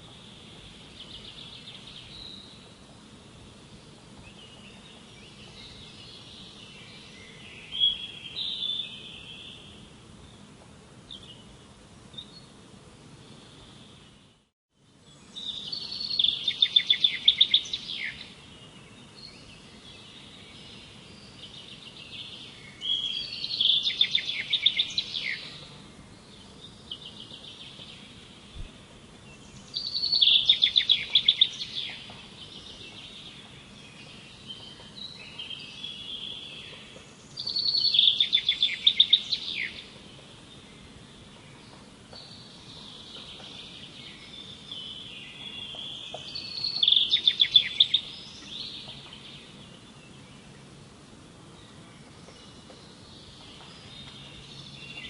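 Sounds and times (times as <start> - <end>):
faint background hiss: 0.0 - 55.0
songbird trilling: 15.4 - 18.3, 21.5 - 25.7, 29.6 - 32.1, 34.1 - 39.9, 42.2 - 49.2.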